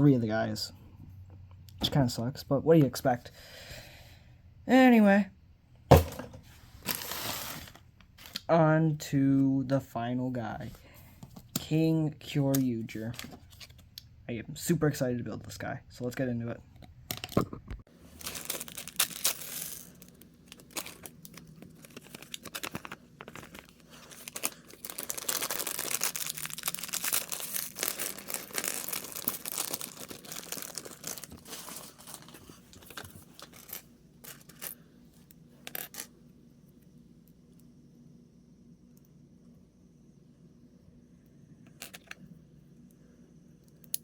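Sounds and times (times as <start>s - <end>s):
plastic packaging tearing and crinkling: 18.0s - 33.7s.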